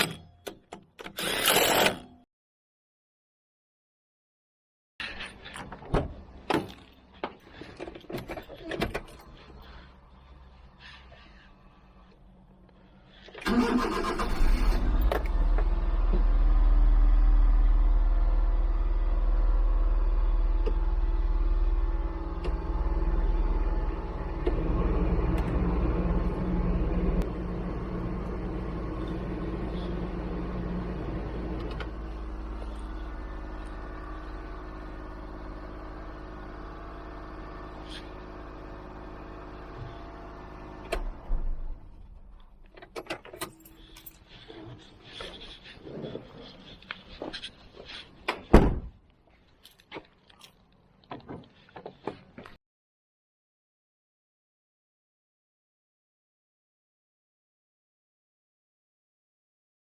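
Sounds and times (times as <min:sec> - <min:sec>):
truck engine starting and running: 0:05.1 - 0:48.8.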